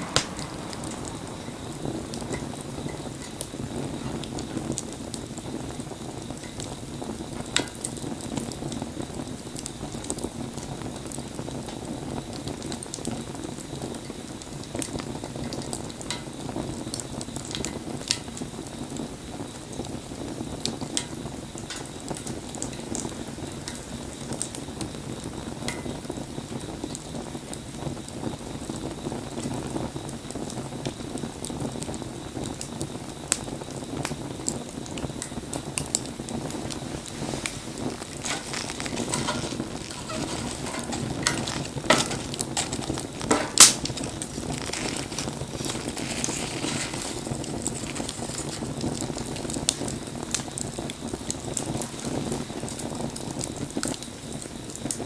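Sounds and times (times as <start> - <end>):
burning wood crackling and popping: 0.0 - 55.0
wood fire rushing flame: 0.0 - 55.0.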